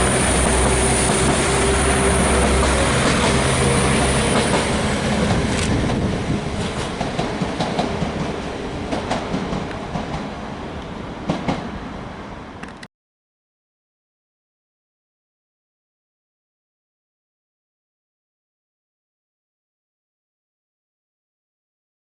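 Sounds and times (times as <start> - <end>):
wheels clacking over rail joints: 0.0 - 10.4
train rumbling past: 0.0 - 12.9.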